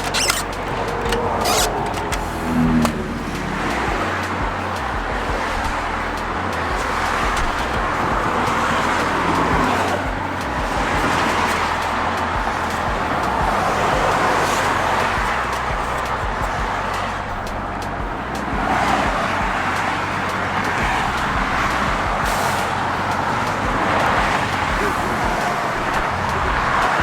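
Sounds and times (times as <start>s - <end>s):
vehicle road and engine noise: 0.0s - 27.0s.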